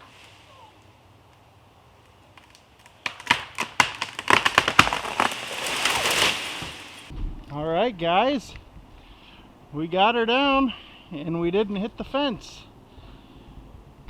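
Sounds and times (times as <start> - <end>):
tree trunk cracking: 0.0 - 7.3
tree crashing down: 2.0 - 7.6.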